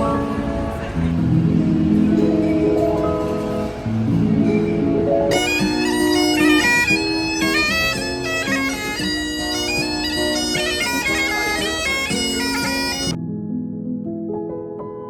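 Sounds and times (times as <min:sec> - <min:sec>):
bagpipes playing: 0:05.3 - 0:13.2.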